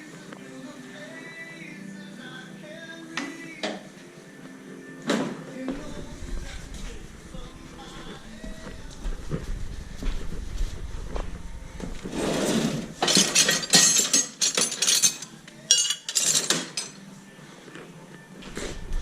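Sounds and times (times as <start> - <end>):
metal tools clinking: 13.0 - 17.1.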